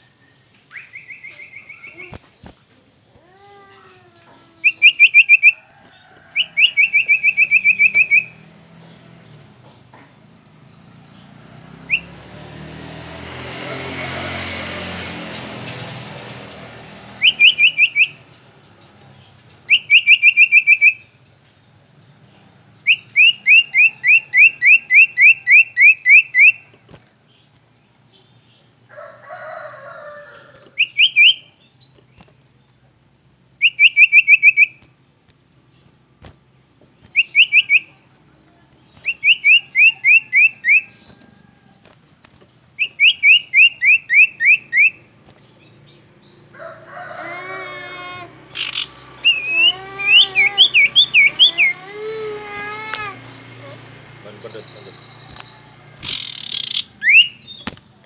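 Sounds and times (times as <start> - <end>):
songbird singing quick rising notes: 0.0 - 2.6, 4.5 - 9.6, 10.4 - 18.4, 19.6 - 21.2, 22.7 - 28.8, 30.6 - 41.5, 42.3 - 58.0
rough bird call: 46.2 - 58.0.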